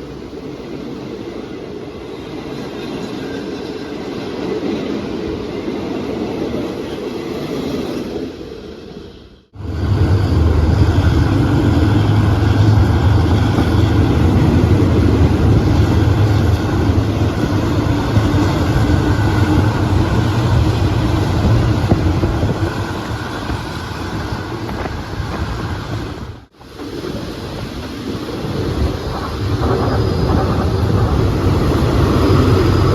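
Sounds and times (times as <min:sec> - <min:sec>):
diesel train engine rumbling: 0:00.0 - 0:32.9.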